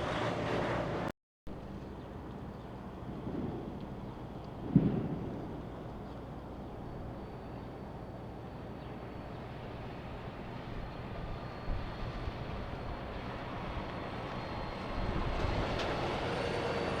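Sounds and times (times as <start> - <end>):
diesel truck engine rumbling: 0.0 - 1.1.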